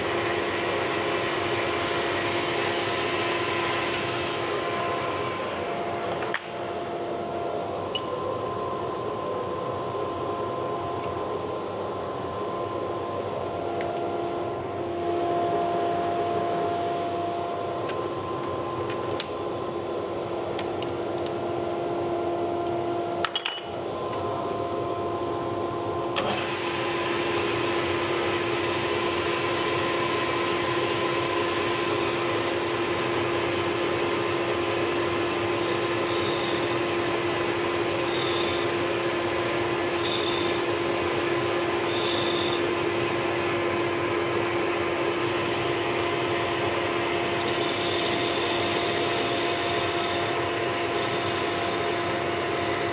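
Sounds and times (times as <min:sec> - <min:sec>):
lathe humming: 0:00.0 - 0:06.0, 0:33.8 - 0:52.9.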